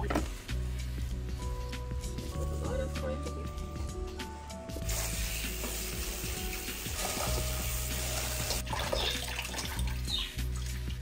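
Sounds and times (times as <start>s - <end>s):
background music: 0.0s - 11.0s
food sizzling in a pan: 4.8s - 8.7s.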